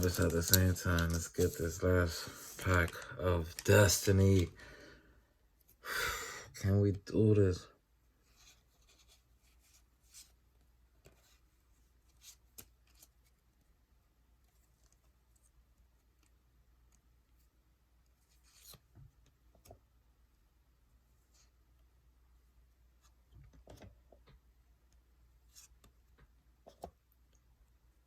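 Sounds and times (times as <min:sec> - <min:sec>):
foil pack and cards rustling: 0:00.0 - 0:04.5.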